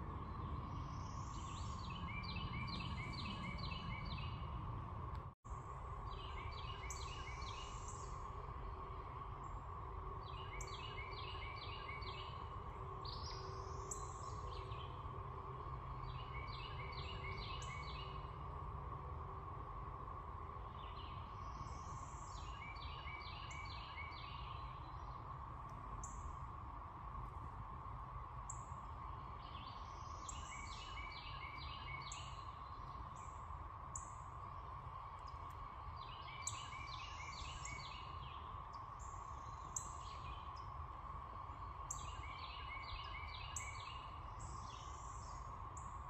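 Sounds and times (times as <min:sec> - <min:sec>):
songbird singing: 0:00.0 - 0:26.6, 0:27.2 - 0:46.0
low background drone: 0:00.0 - 0:46.0.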